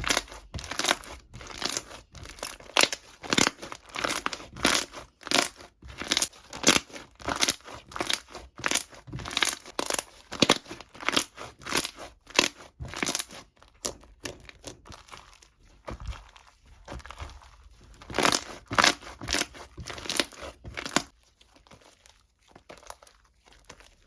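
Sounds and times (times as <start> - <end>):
crinkling and crumpling: 0.0 - 24.0.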